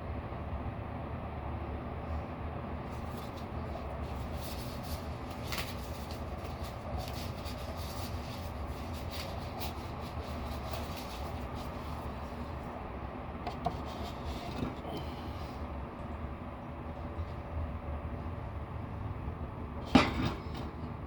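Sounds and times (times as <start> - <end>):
steady low rumble: 0.0 - 19.9
rustling and crackling clicks: 3.0 - 12.5.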